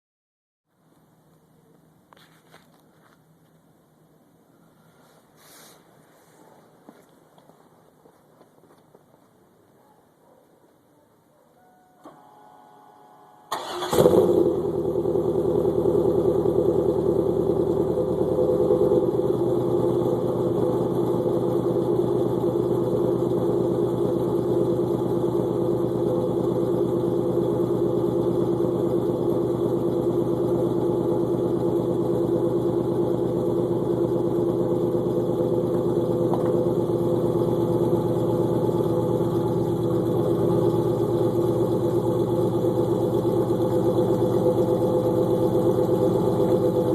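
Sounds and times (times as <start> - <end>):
engine cold start and idle: 13.5 - 46.9.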